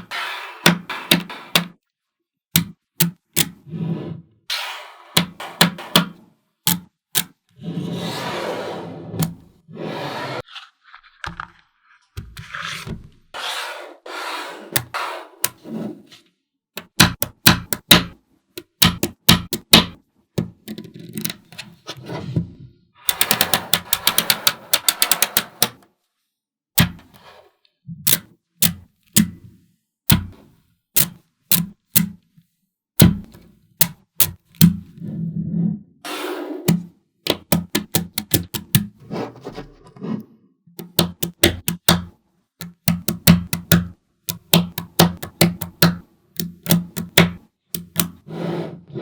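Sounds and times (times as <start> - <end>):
magnetic balls clicking: 16.8 - 21.4, 36.7 - 38.9, 40.8 - 48.2.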